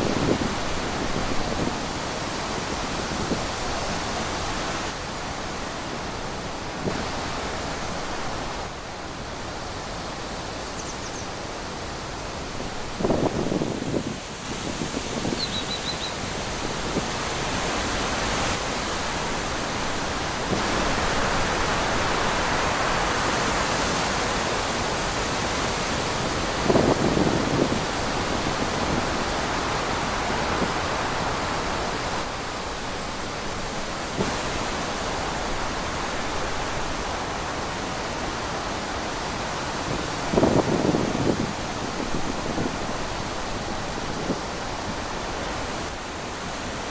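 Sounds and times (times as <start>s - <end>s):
wind blowing through trees: 0.0s - 46.9s
high chirp: 15.4s - 16.2s.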